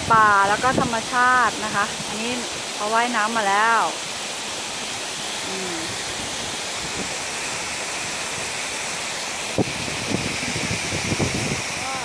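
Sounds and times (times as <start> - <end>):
waterfall rushing: 0.0 - 12.0
faint voice: 11.8 - 12.0.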